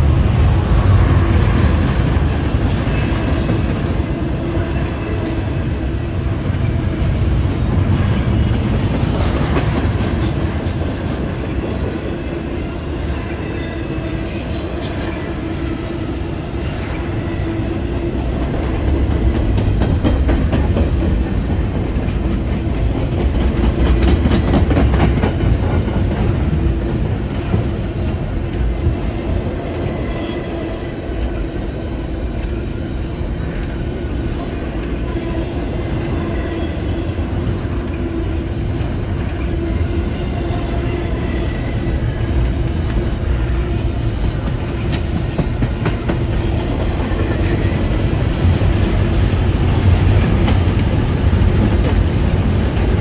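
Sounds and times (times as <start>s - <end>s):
freight train rolling past: 0.0s - 53.0s
steel wheels clacking on rails: 0.0s - 53.0s.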